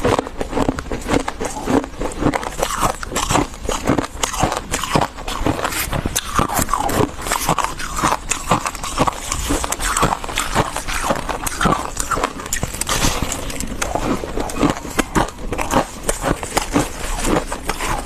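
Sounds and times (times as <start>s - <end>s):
frost being chewed crunching: 0.0s - 18.0s.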